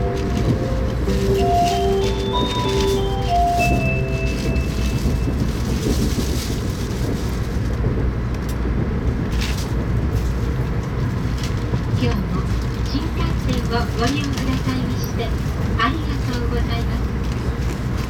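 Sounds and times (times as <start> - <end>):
chime melody: 0.0 - 5.6
train wheels rumbling: 0.0 - 18.0.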